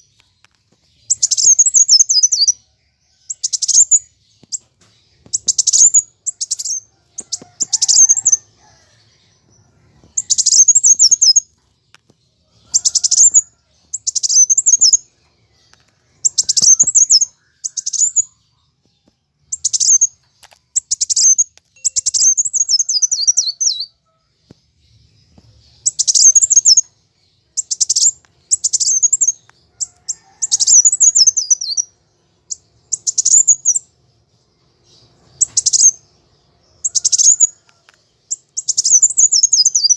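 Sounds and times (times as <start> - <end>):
bird chattering high-pitched: 1.1 - 2.6, 5.3 - 8.5, 10.1 - 11.5, 12.6 - 15.0, 16.2 - 18.4, 20.8 - 23.9, 25.8 - 26.9, 27.6 - 31.9, 32.5 - 33.8, 36.8 - 37.5, 38.3 - 39.9.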